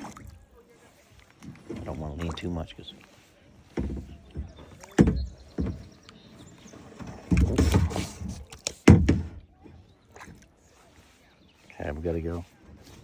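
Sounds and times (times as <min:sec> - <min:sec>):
paddle splashing water: 0:00.0 - 0:13.0
paddle knocks: 0:03.6 - 0:10.5.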